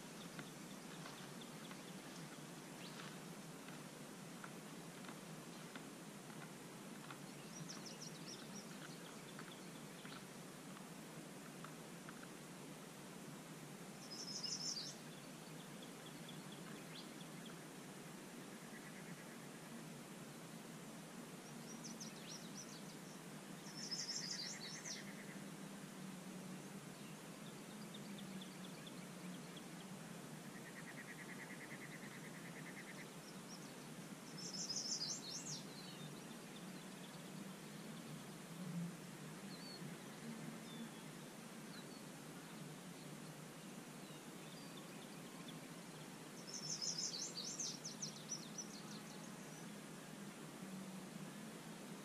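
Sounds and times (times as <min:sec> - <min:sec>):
songbird singing: 0:00.0 - 0:52.0
faint bird chirps: 0:14.0 - 0:17.7, 0:18.4 - 0:19.9, 0:21.4 - 0:25.7, 0:26.9 - 0:38.4, 0:39.4 - 0:50.2.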